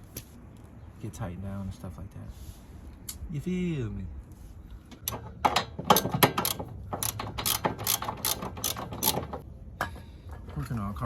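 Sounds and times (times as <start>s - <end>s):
socket ratchet clicking: 5.9s - 9.4s.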